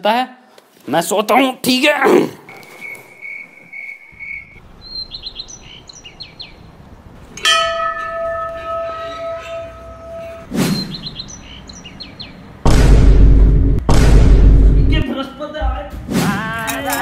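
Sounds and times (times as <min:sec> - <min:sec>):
birds chirping: 0:02.4 - 0:12.7
long steady pitched tone: 0:07.6 - 0:10.5.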